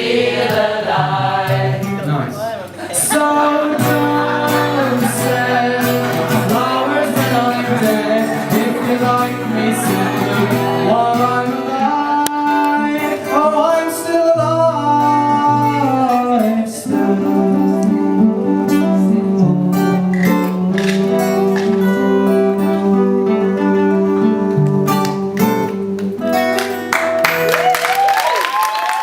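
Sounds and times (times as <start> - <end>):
acoustic guitar: 0.0 - 28.6
person singing: 2.9 - 25.9.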